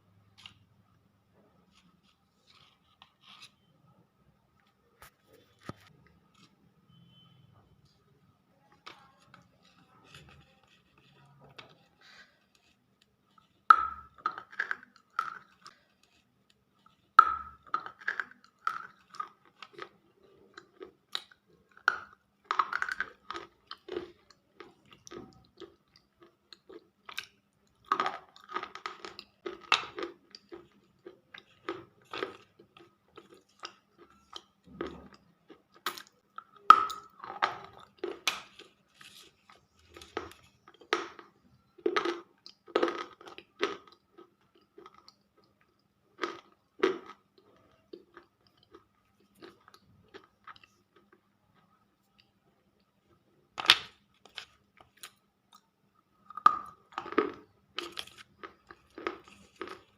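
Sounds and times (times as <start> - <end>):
slate pencils crunching: 35.7 - 45.0, 57.0 - 59.9.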